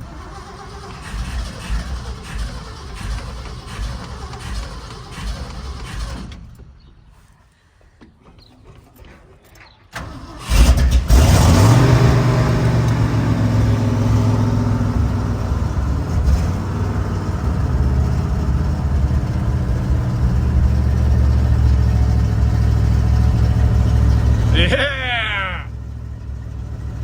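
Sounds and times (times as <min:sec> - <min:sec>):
car engine cranking and idling: 0:00.0 - 0:06.5, 0:10.0 - 0:27.0.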